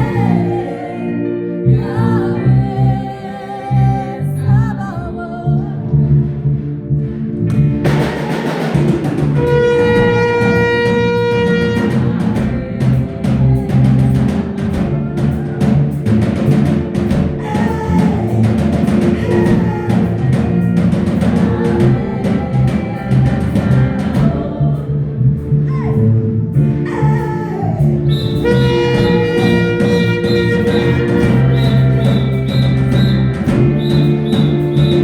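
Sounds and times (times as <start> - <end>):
fast continuous drumming: 7.9 - 24.5, 28.1 - 35.0
long held note: 9.4 - 12.3, 28.1 - 35.0.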